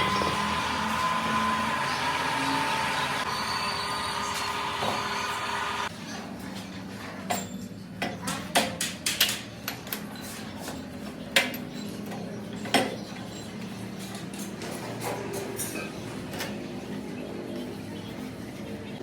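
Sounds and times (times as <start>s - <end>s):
low machine hum: 0.0s - 5.9s.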